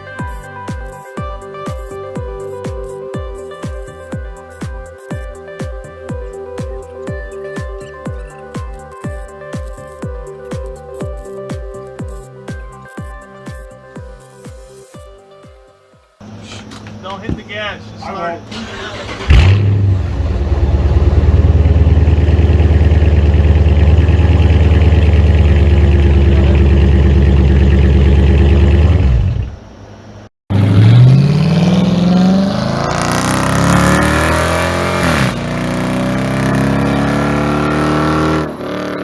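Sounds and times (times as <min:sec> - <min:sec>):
loud car engine revving: 0:18.5 - 0:29.6, 0:30.5 - 0:39.0.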